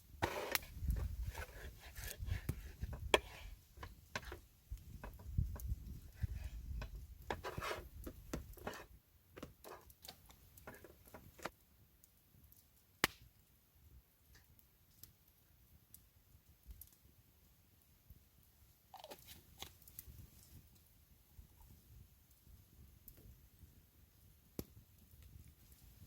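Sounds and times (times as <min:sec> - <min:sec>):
knife scraping strokes: 0:00.2 - 0:04.4, 0:06.2 - 0:08.8.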